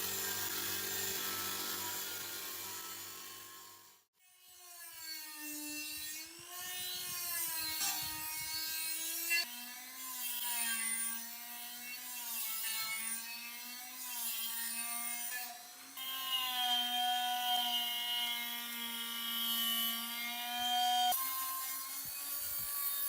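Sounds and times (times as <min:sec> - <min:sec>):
power tool motor whining: 0:00.0 - 0:04.0.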